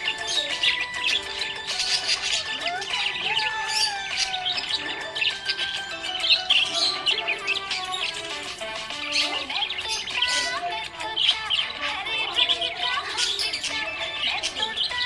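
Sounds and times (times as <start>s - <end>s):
background music: 0.0s - 15.0s
budgerigars chirping: 0.0s - 15.0s.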